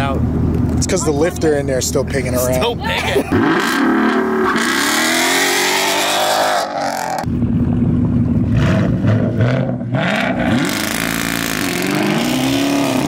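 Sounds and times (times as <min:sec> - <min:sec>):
car engine revving: 0:00.1 - 0:13.0
car accelerating away: 0:03.2 - 0:13.0.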